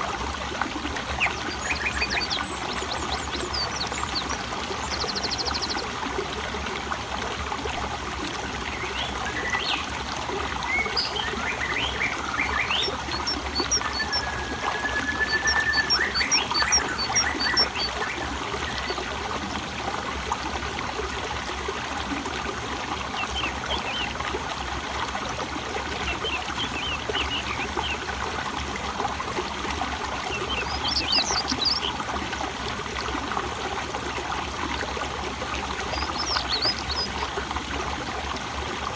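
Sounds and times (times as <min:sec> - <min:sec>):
water trickling: 0:00.0 - 0:38.9
birds chirping: 0:10.7 - 0:18.9.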